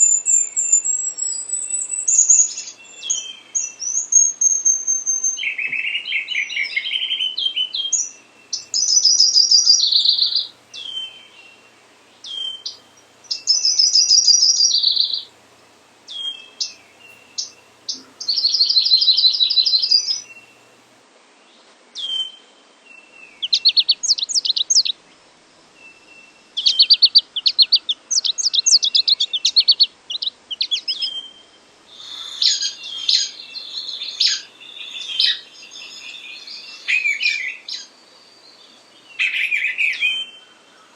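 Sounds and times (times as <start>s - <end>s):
songbird trilling song: 0.0s - 15.4s, 16.1s - 20.7s, 22.0s - 25.0s, 25.8s - 40.9s.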